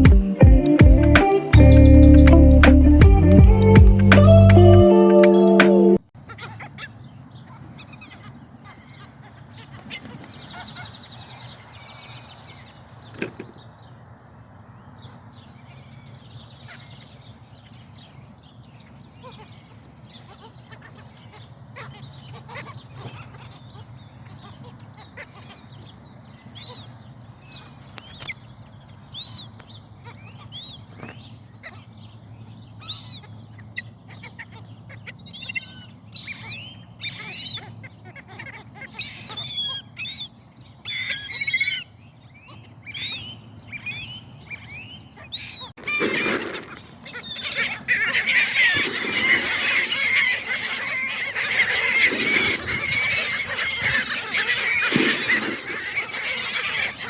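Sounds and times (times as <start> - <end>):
seagulls calling: 0.0 - 13.9, 15.0 - 57.0.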